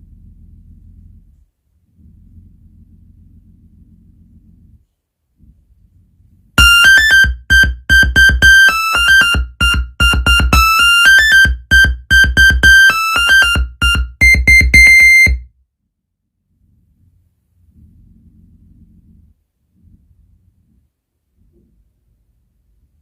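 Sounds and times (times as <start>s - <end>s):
phone ringtone melody with bass: 6.6s - 15.4s.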